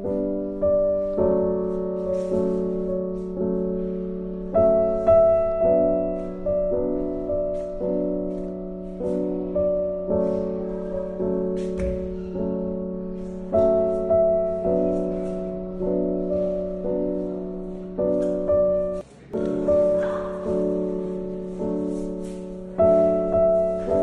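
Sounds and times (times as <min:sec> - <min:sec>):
gentle piano chords: 0:00.0 - 0:24.0.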